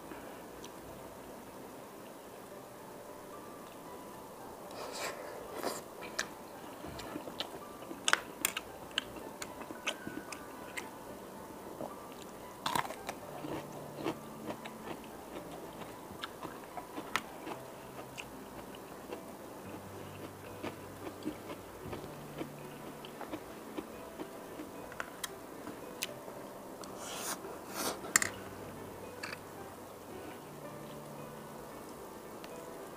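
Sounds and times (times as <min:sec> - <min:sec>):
person chewing pasta: 0:06.9 - 0:10.9, 0:12.1 - 0:18.8, 0:19.7 - 0:25.3.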